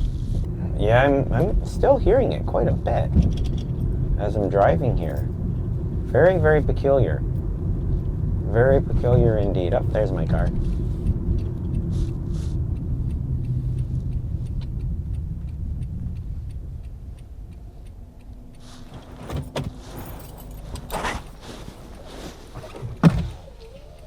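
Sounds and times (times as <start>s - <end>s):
car road and engine rumble: 0.0s - 24.0s
light clicks and rattles: 1.4s - 24.0s.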